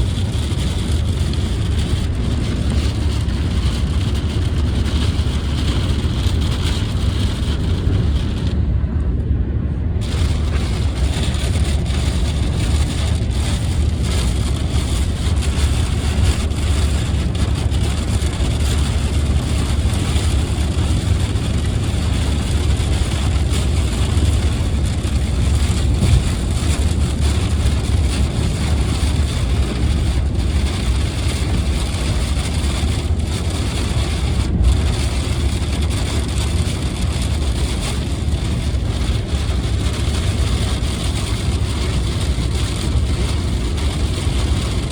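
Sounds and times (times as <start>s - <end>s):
road and engine rumble: 0.0s - 44.9s
wet hiss of tyres and rain: 10.0s - 41.6s.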